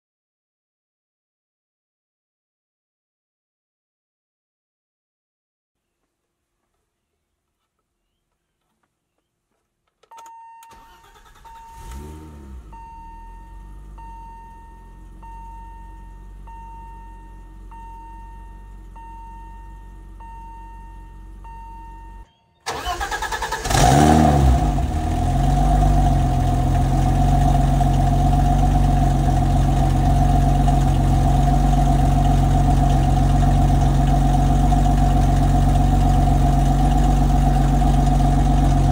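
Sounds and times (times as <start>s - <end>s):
car engine revving and idling: 11.0s - 38.9s
starter motor cranking: 22.7s - 28.1s.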